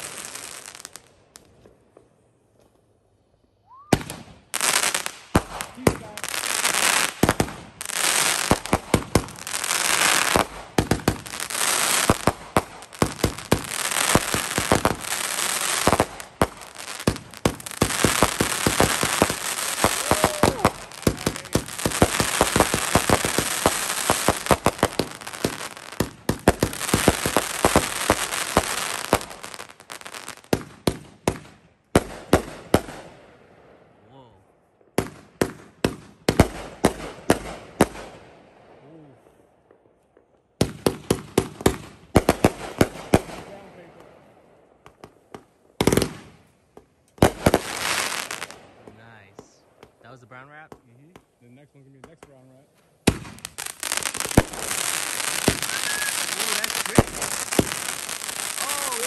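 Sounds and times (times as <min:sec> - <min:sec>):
firework crackling: 0:00.0 - 0:01.6, 0:03.6 - 0:33.1, 0:47.1 - 0:50.4, 0:52.2 - 0:59.0
firework shots and bangs: 0:03.9 - 0:29.8, 0:30.4 - 0:33.3, 0:34.9 - 0:38.4, 0:40.6 - 0:44.2, 0:44.8 - 0:50.1, 0:53.0 - 0:59.0.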